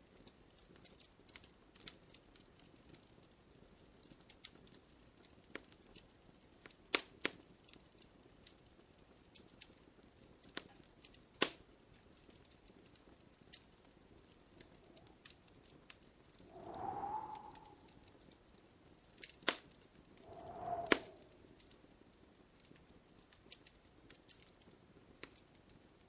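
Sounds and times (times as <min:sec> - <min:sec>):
fire popping and cracking: 0:00.0 - 0:26.0
wood fire crackling: 0:00.0 - 0:26.0
faint whistling tone: 0:16.4 - 0:18.1, 0:20.2 - 0:21.4.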